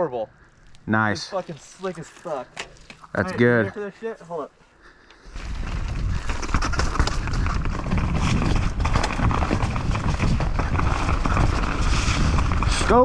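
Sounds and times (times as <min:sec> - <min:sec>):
wind noise: 0:05.2 - 0:13.0
bike rattling over ground: 0:05.3 - 0:13.0
tyre noise: 0:05.3 - 0:13.0.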